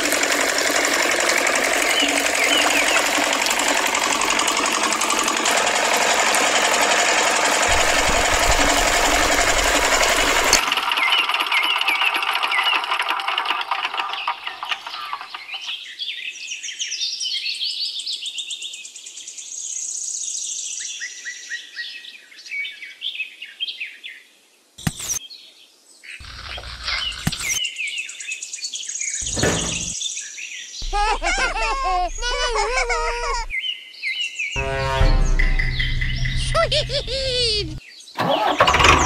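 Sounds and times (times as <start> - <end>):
small motor rattling: 0.0 - 15.8, 26.2 - 27.6, 29.2 - 30.0, 30.8 - 33.5, 34.6 - 39.0
birds chirping and tweeting: 1.6 - 5.5, 13.8 - 24.2, 24.8 - 38.2.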